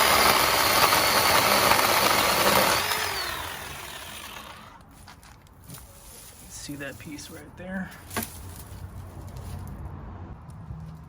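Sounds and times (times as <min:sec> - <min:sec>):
electric chainsaw cutting branch: 0:00.0 - 0:04.8.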